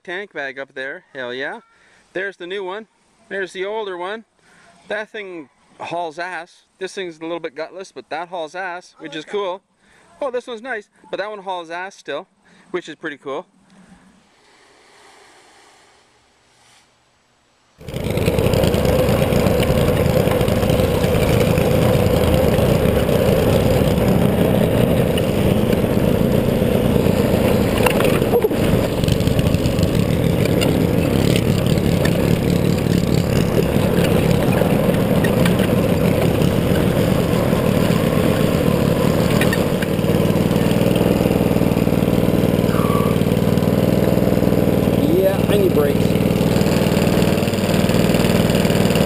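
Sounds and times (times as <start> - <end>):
small gasoline engine running: 17.8 - 49.0.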